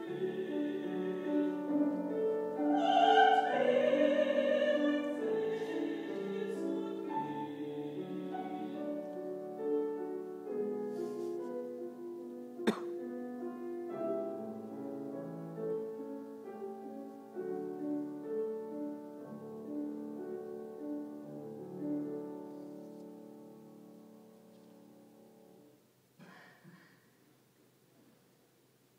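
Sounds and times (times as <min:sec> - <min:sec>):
person singing: 0:00.0 - 0:09.2
piano playing classical passage: 0:00.0 - 0:25.9.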